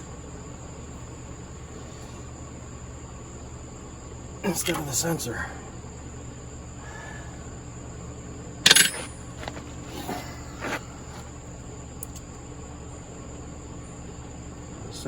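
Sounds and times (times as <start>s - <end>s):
steady background hum: 0.0s - 15.0s
wrench clinking against metal: 8.7s - 9.6s.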